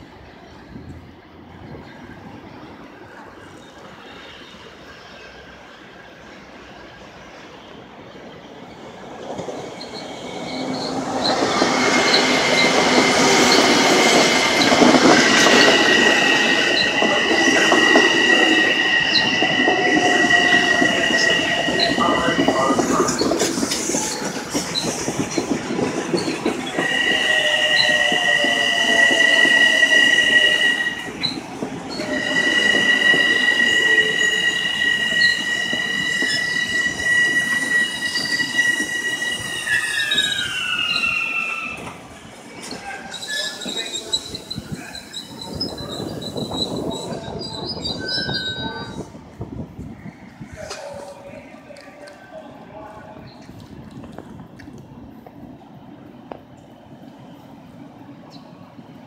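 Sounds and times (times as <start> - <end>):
train passing: 0.0 - 59.0
train wheels squealing: 9.3 - 41.9, 42.6 - 49.1.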